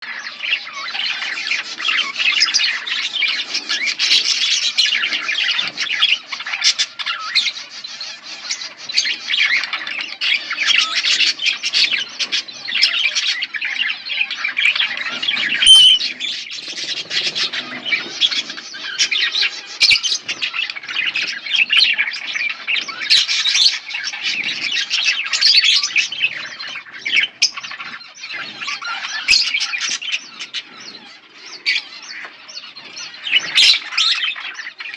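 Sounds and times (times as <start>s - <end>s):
budgerigars chattering and chirping: 0.0s - 34.9s.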